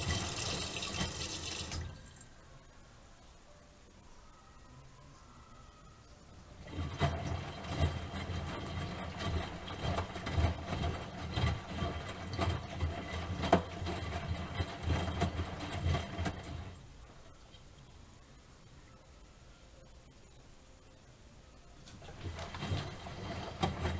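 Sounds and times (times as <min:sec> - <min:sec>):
washing machine motor hum: 0:00.0 - 0:02.6, 0:06.4 - 0:18.6, 0:21.6 - 0:23.9.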